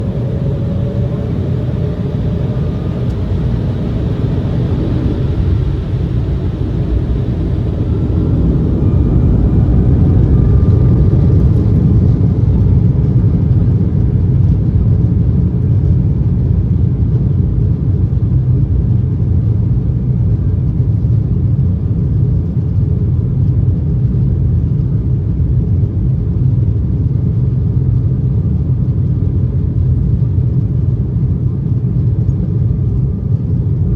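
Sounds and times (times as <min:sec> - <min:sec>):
faint whining tones: 0:00.0 - 0:13.2
jet engines rumbling in cabin: 0:00.0 - 0:33.9.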